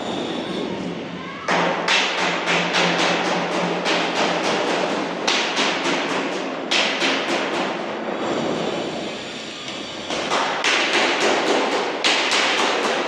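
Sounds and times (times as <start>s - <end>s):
hammer striking sheet metal: 1.5s - 8.0s, 10.1s - 13.0s.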